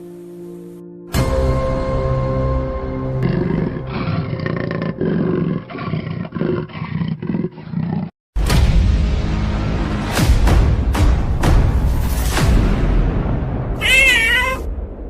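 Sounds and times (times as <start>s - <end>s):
deep animal roar: 3.2s - 8.1s.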